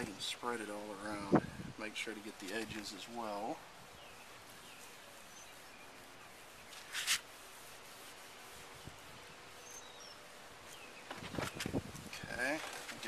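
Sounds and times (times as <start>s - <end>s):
rag wiping plastic lens: 4.2s - 13.0s
faint bird chirps: 8.8s - 11.7s.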